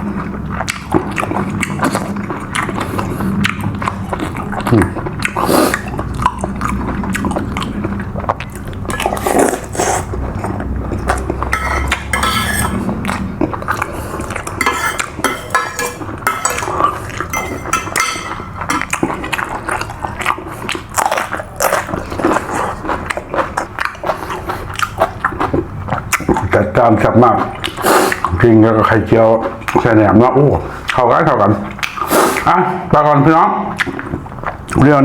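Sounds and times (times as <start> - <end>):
person chewing food: 0.0 - 26.6, 27.4 - 28.4, 31.6 - 32.5
cutlery clinking on a plate: 11.5 - 12.9, 14.6 - 19.2.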